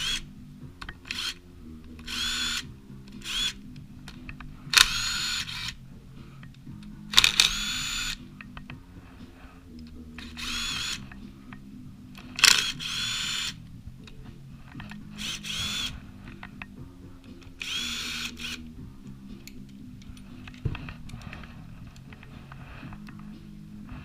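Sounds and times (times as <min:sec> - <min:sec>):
power drill whining: 0:00.0 - 0:00.2, 0:02.0 - 0:03.6, 0:04.7 - 0:05.8, 0:07.2 - 0:08.2, 0:10.2 - 0:11.0, 0:12.4 - 0:13.6, 0:15.2 - 0:16.0, 0:17.6 - 0:18.7.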